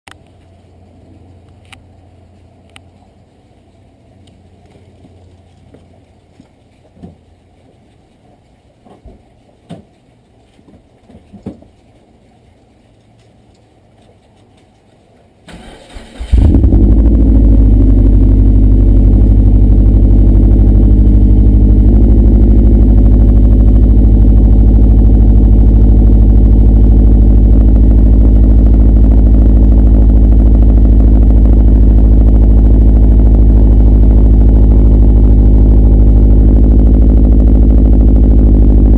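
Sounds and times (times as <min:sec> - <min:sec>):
car engine cranking and starting: 0:15.5 - 0:38.9
car engine idling: 0:15.5 - 0:38.9.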